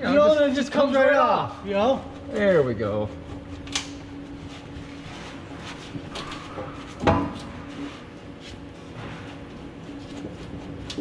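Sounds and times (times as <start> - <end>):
metal clunking and scraping: 8.8 - 11.0.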